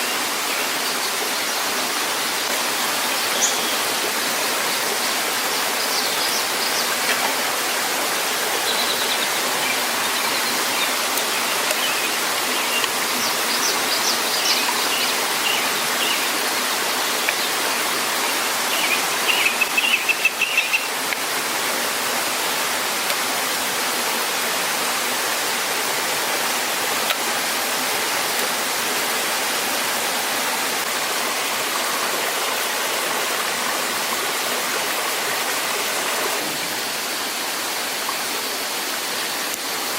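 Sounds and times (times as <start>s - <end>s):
waterfall rushing: 0.0s - 39.9s
small birds chirping: 17.0s - 21.0s.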